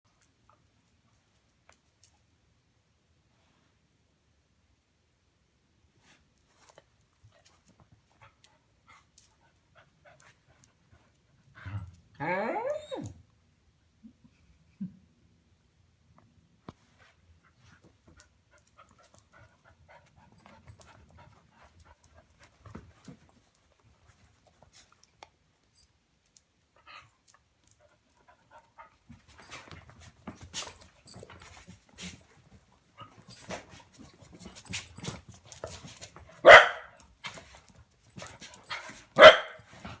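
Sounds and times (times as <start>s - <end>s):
dogs scuffling and panting: 16.6s - 25.9s, 27.2s - 40.0s.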